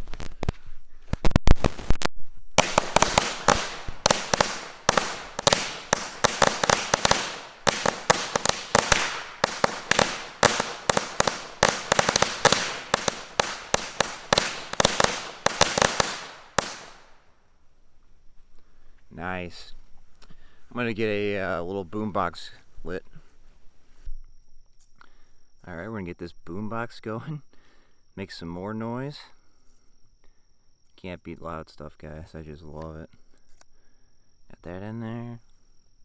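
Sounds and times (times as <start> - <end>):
firecrackers cracking: 0.0 - 0.5, 1.1 - 17.2.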